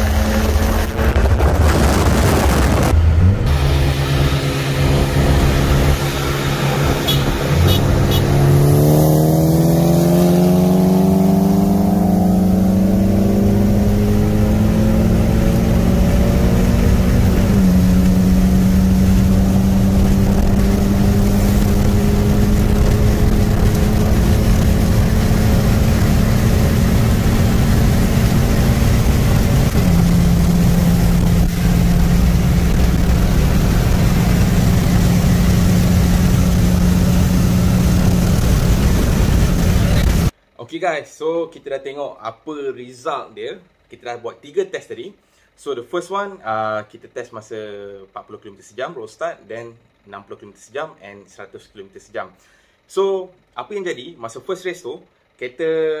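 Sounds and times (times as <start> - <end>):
car engine at full throttle: 0.0 - 40.4.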